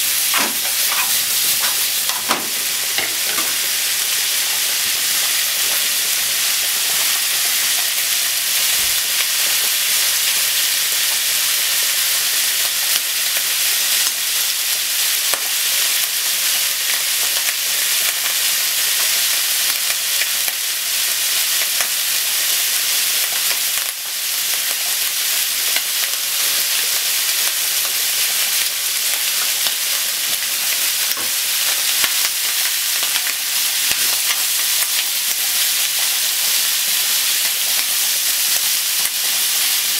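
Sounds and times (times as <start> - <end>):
onion and bacon sizzling: 0.0 - 39.9
chopsticks stirring in pan: 0.3 - 3.8.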